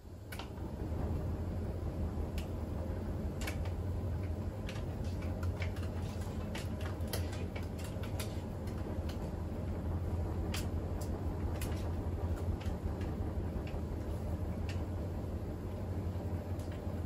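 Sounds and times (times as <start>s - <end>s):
washing machine humming: 0.0s - 17.0s.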